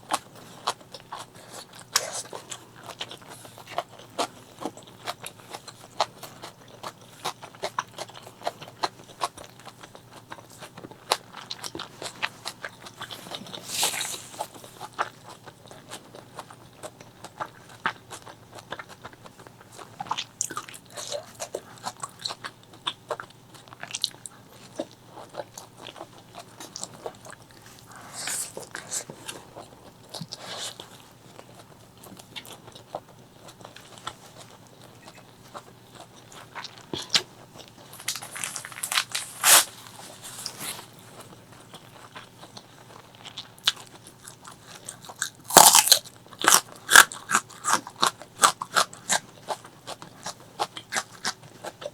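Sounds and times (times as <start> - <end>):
person chewing food: 0.0 - 51.9.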